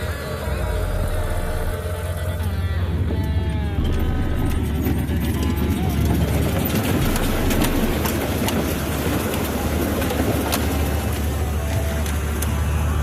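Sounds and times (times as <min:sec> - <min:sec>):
vehicle engine running: 0:00.0 - 0:13.0
rushing water rumble: 0:02.9 - 0:13.0.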